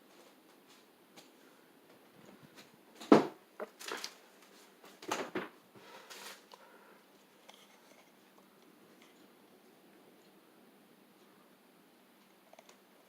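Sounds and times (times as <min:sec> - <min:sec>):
faint steady hum: 0:00.0 - 0:13.0
knocks and rustles: 0:02.1 - 0:04.2, 0:04.8 - 0:05.6.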